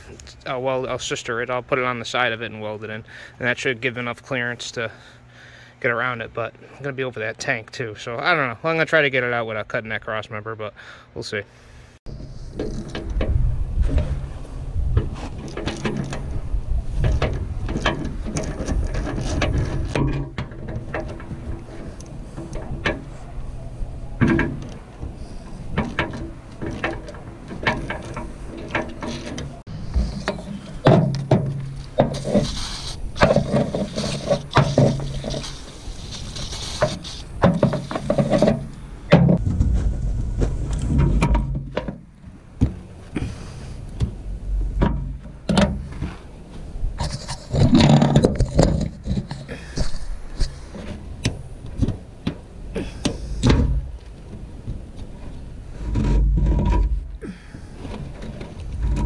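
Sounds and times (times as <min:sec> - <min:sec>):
metal knocks and clanks: 0:12.5 - 0:32.6, 0:36.8 - 0:42.9, 0:44.0 - 0:46.2, 0:47.0 - 0:57.2.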